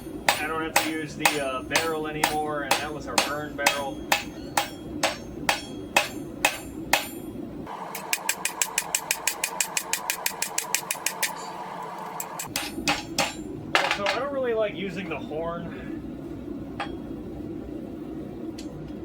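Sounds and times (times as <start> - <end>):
steady low rumble: 0.0 - 7.7, 11.3 - 19.0
hammer striking steel on anvil: 0.0 - 11.5, 12.2 - 14.2.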